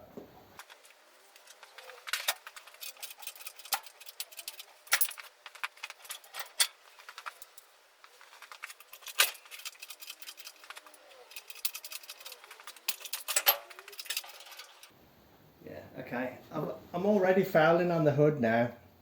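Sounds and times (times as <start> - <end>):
engine hoist chain clinking: 0.6 - 14.9.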